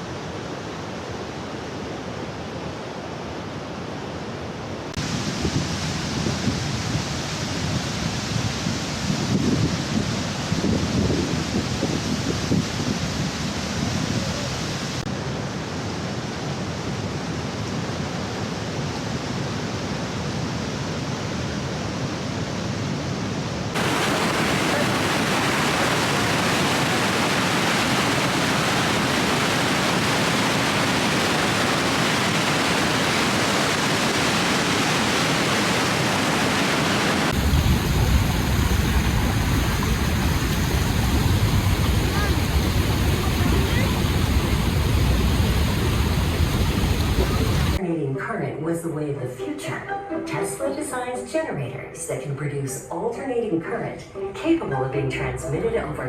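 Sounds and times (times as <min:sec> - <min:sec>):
roar of waterfall: 0:00.0 - 0:22.7, 0:23.7 - 0:47.8.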